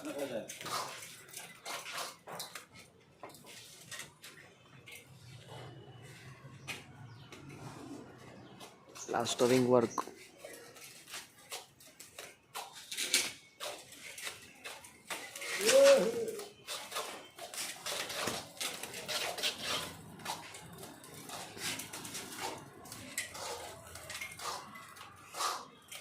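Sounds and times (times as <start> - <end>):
trowels scraping and clinking: 9.0 - 26.0
pitched call: 15.5 - 16.5.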